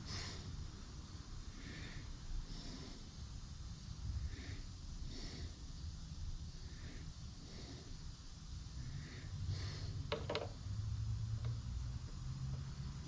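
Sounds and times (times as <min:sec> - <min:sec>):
soft breathing: 0:00.0 - 0:10.1
low steady hum: 0:00.0 - 0:13.0.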